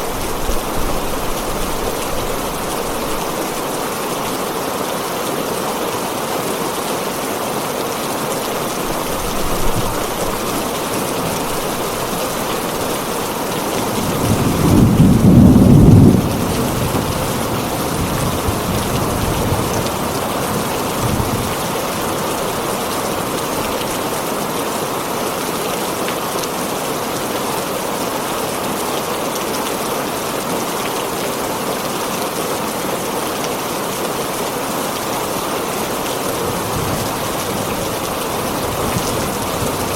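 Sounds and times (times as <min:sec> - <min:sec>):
rain on a tin roof: 0:00.0 - 0:39.9
thunder rumbling: 0:13.8 - 0:21.9.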